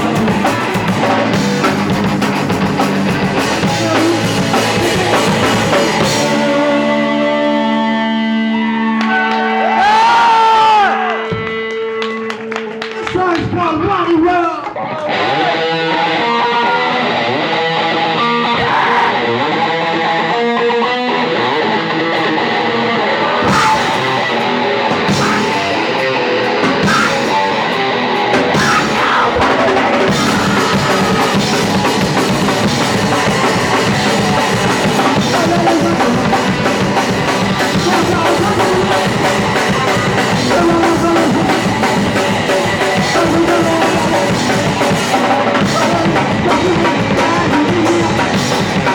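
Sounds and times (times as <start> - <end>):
drum and cymbal hits: 0.0 - 7.0, 23.5 - 48.9
electric guitar riff: 0.0 - 13.6, 14.8 - 48.9
punk rock band playing: 0.0 - 48.9.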